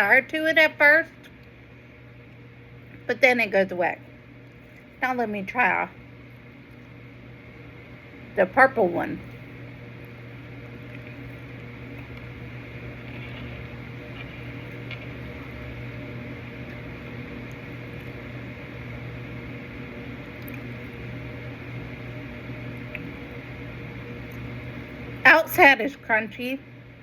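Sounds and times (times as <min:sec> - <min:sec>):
steady low hum: 0:00.0 - 0:27.0
small crunches: 0:10.0 - 0:15.8.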